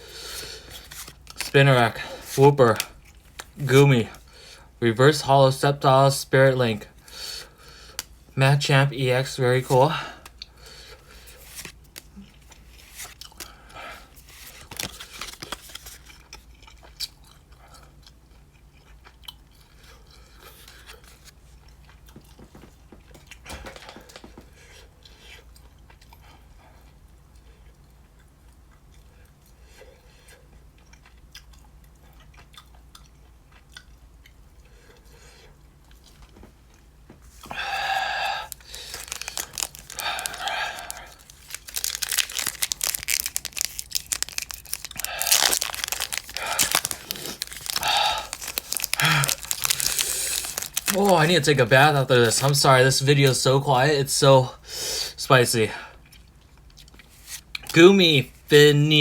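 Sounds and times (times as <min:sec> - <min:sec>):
chewing with small clicks: 0:15.9 - 0:20.8, 0:25.0 - 0:36.9, 0:55.9 - 0:57.7.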